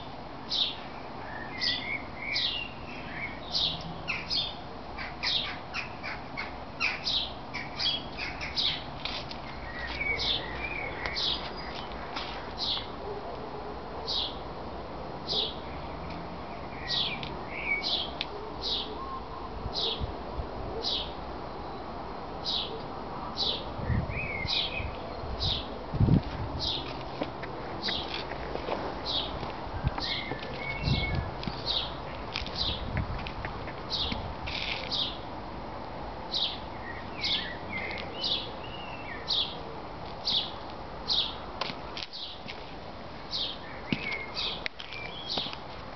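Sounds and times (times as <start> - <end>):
bird chirping: 0.5 - 8.9, 30.0 - 32.9, 36.3 - 39.6, 43.3 - 45.6.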